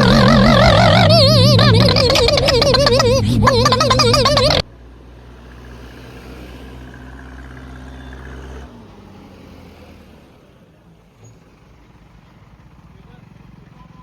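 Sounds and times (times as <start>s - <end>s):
diesel engine running: 0.0s - 4.7s.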